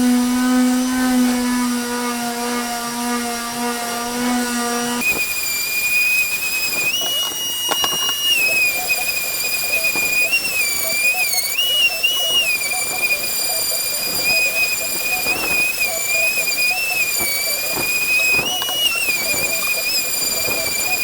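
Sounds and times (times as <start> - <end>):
electric sander motor humming: 0.0 - 21.0
high-pitched whine: 4.9 - 21.0.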